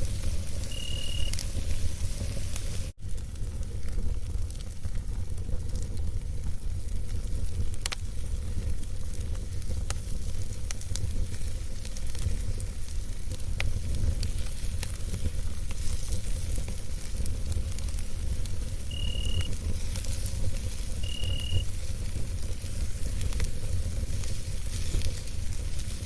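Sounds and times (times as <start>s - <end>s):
campfire crackling and popping: 0.0s - 26.0s
low rumble of burning fire: 0.0s - 26.0s
brief high tone: 0.7s - 1.4s.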